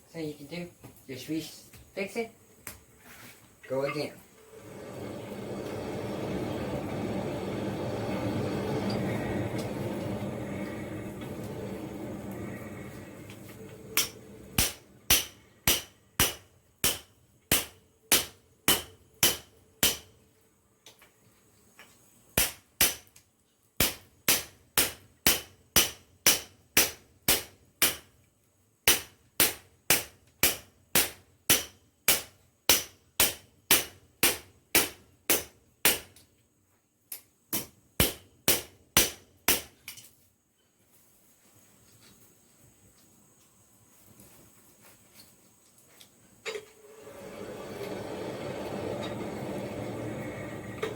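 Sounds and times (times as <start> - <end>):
wrench hammering hot metal: 14.0 - 20.1, 22.4 - 23.2, 23.8 - 28.1, 28.9 - 36.1, 37.5 - 39.7.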